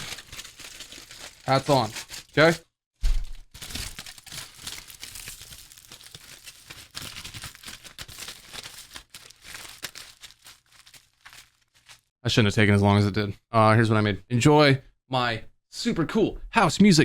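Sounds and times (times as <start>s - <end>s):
crinkling and crackling: 0.0s - 2.7s, 3.3s - 12.1s.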